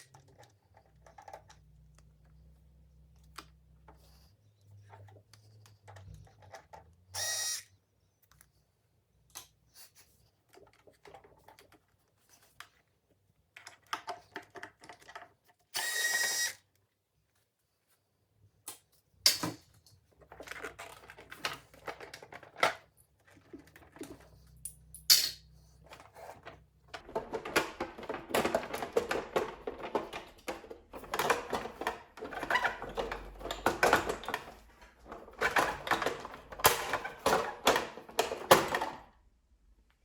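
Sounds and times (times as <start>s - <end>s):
small parts and tools rattling: 10.4s - 16.6s, 19.3s - 39.2s.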